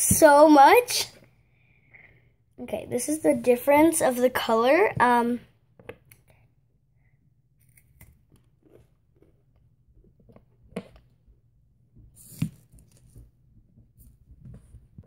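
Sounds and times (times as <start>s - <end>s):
person chewing wafer crunchily: 7.6s - 10.7s.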